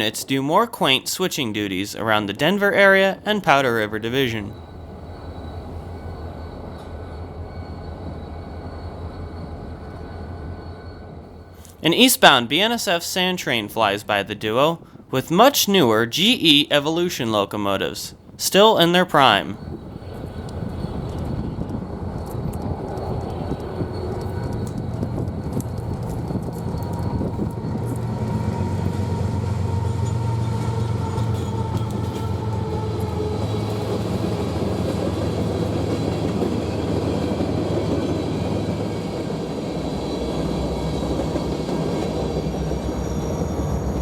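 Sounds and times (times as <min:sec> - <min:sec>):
train wheels rushing on rail: 0:02.4 - 0:12.1, 0:19.6 - 0:44.0.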